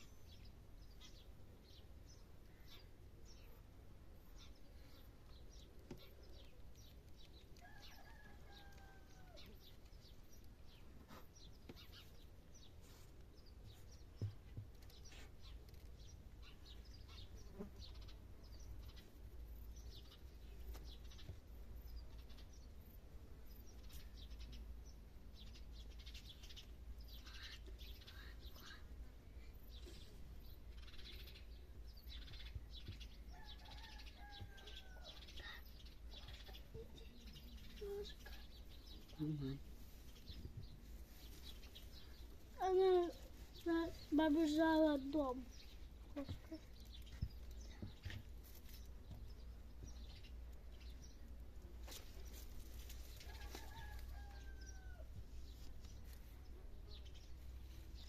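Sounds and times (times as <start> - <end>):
faint clicks and rustles: 5.0 - 16.6, 39.8 - 54.5.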